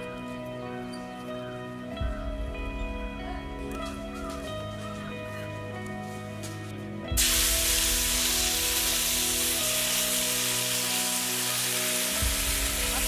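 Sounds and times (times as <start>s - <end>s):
background music: 0.0s - 13.0s
food sizzling in a hot pan: 7.2s - 13.0s.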